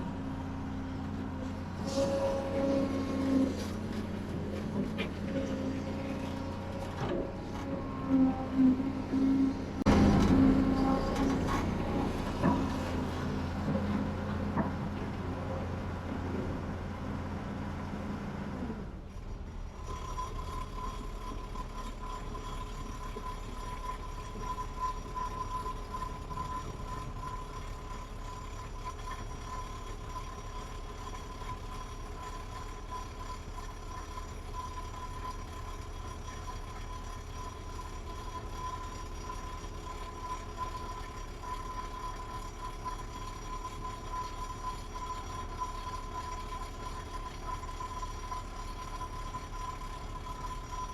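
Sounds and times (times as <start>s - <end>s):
thin whine: 0.0s - 12.9s
diesel engine rumble: 0.0s - 50.9s.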